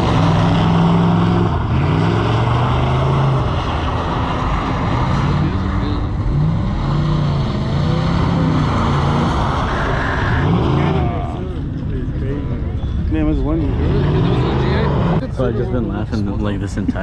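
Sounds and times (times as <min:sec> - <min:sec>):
vehicle engine revving: 0:00.0 - 0:11.7, 0:13.1 - 0:15.2.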